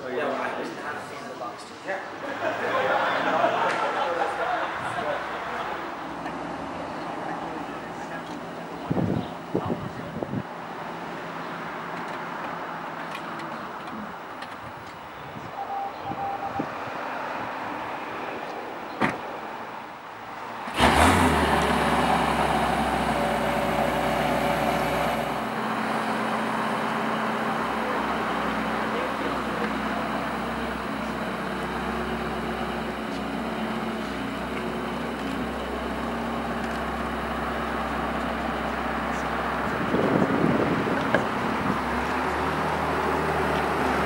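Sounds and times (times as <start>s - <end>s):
car engine starting and idling: 20.6s - 44.0s.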